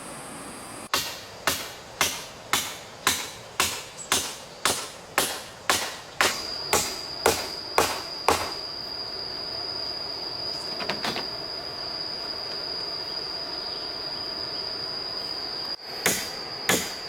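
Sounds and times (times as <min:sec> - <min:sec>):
hand tool striking wood: 0:00.9 - 0:08.6, 0:16.0 - 0:17.0.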